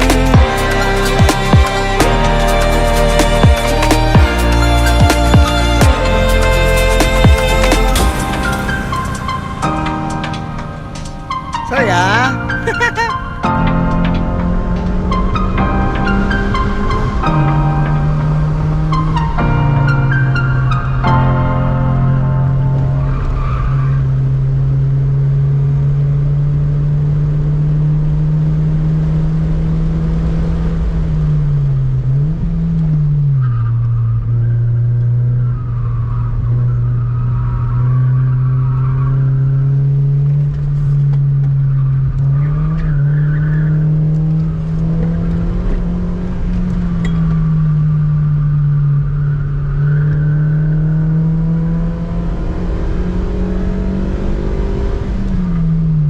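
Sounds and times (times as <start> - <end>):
car engine at high revs: 38.4 - 56.0.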